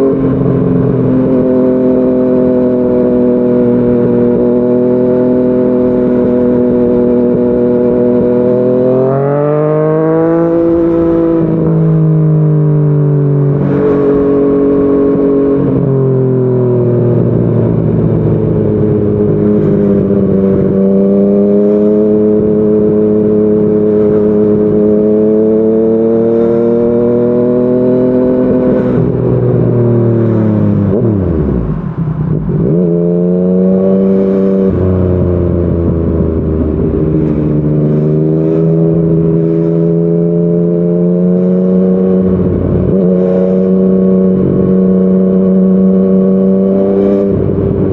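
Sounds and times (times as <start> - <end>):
motorcycle engine with gear changes: 0.0 - 47.9.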